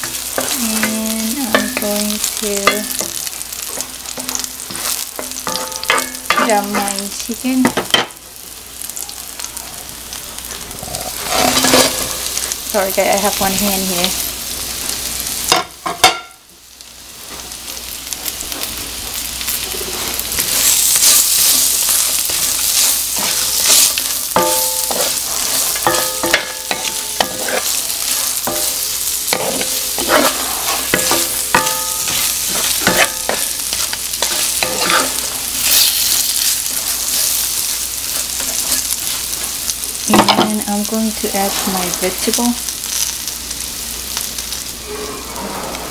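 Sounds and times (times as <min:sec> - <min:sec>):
chicken sizzling in oil: 0:00.0 - 0:45.9
wooden spatula scraping pan: 0:11.1 - 0:12.2, 0:26.9 - 0:28.7, 0:29.3 - 0:35.4, 0:44.8 - 0:45.9.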